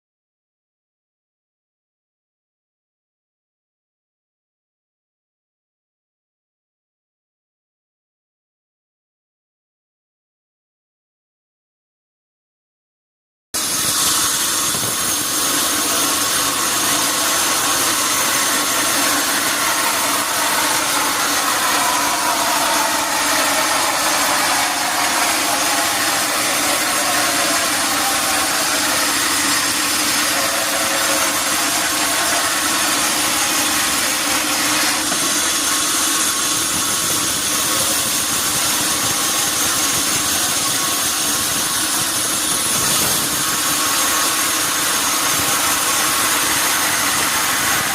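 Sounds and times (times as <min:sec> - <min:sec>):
sawmill saw cutting log: 0:13.6 - 0:47.9.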